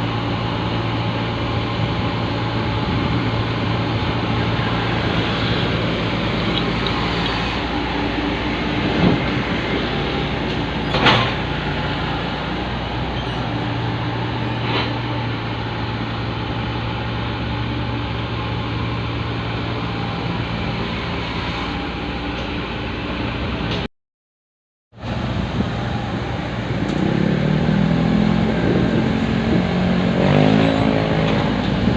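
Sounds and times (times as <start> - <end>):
excavator engine running: 0.0 - 23.9.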